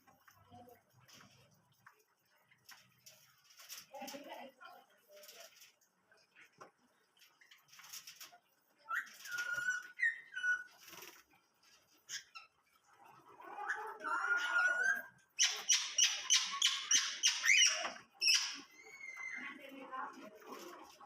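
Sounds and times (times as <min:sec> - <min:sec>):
small birds chirping and whistling: 0:08.8 - 0:11.2, 0:13.4 - 0:19.6.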